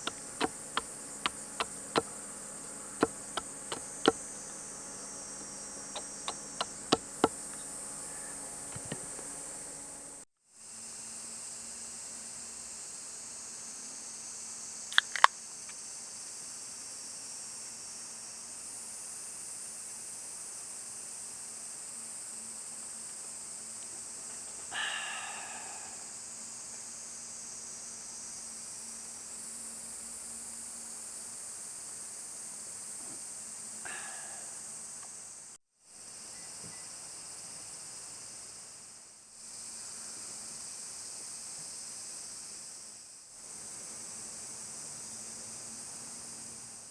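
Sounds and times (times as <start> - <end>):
sharp clicks: 0.0 - 9.3
insect chorus: 0.0 - 10.2, 11.4 - 46.9.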